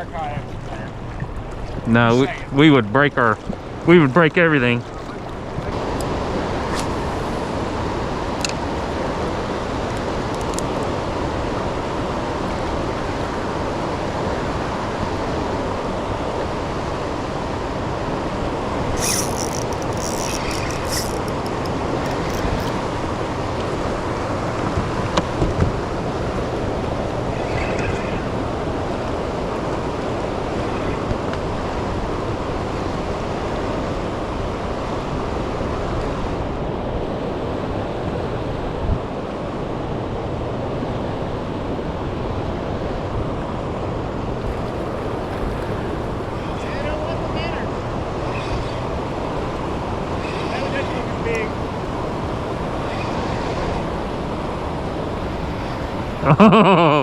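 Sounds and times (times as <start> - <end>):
turbulent water rushing: 0.0 - 33.8, 44.3 - 56.3
faint high clicks: 19.0 - 23.1.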